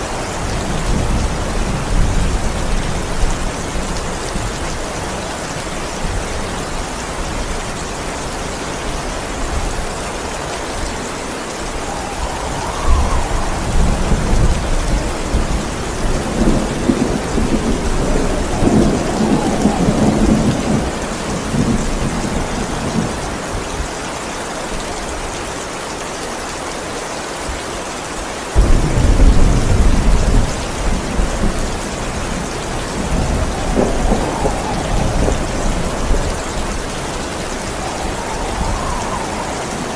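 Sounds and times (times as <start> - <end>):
rolling thunder: 0.0 - 7.8, 9.4 - 23.4, 28.6 - 39.9
heavy rain: 0.0 - 39.9
loud thunderclap: 11.6 - 23.2, 28.6 - 39.9.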